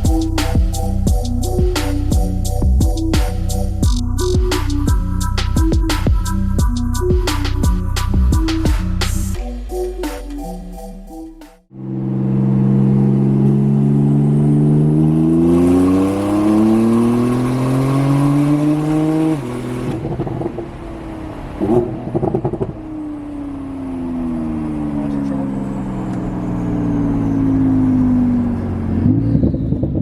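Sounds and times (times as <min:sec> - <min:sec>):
car engine accelerating hard: 0:11.7 - 0:30.0.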